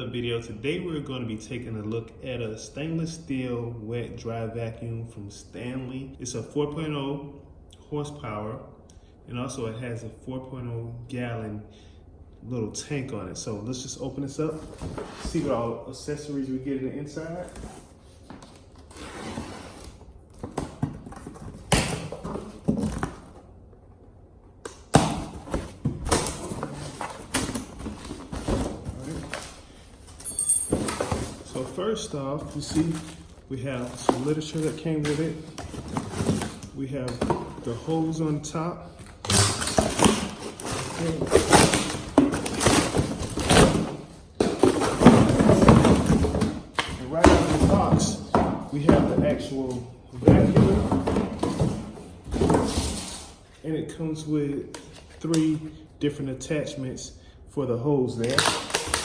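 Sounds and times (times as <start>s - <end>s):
cardboard box rustling and scraping: 14.6s - 15.6s, 17.4s - 23.3s, 50.3s - 53.4s
vacuum parts bumping: 32.4s - 53.0s.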